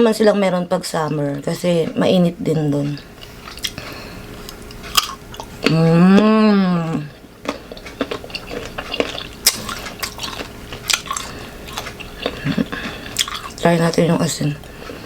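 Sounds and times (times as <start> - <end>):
crunchy chewing of unripe fruit: 2.7 - 15.0
person humming: 5.7 - 7.2.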